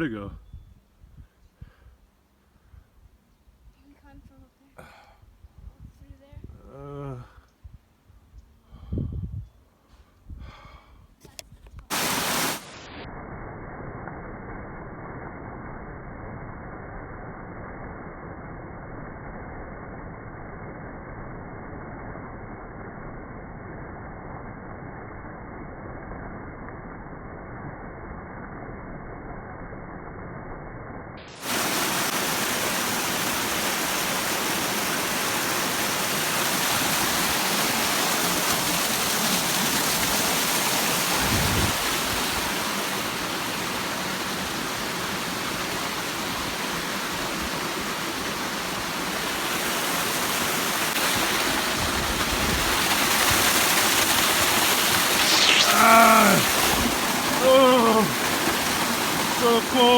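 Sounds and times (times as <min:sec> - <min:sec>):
waterfall rushing: 0:11.9 - 0:12.9, 0:31.3 - 0:59.9.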